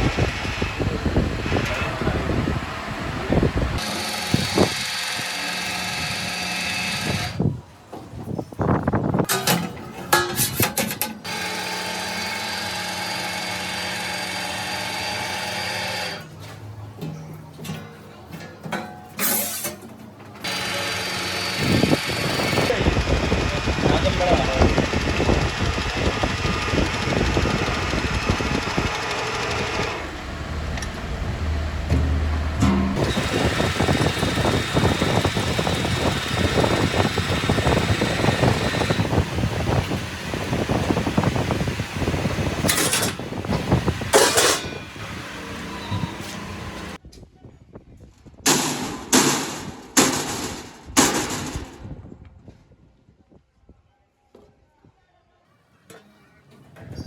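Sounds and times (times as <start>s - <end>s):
metalworking machinery clattering: 9.2s - 15.6s, 16.2s - 47.0s, 48.5s - 51.9s.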